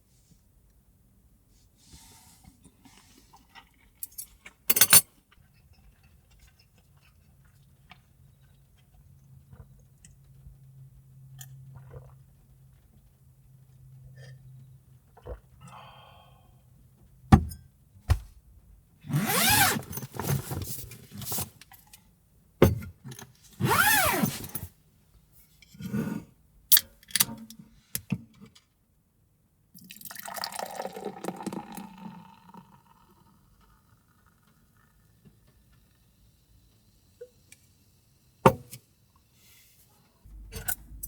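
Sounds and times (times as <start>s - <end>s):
liquid pouring into container: 29.8s - 35.0s.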